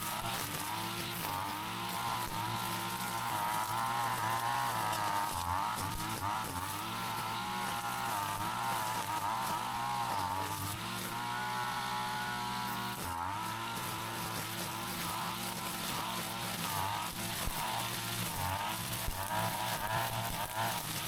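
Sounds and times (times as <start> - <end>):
brush cutter engine running: 0.0 - 21.0.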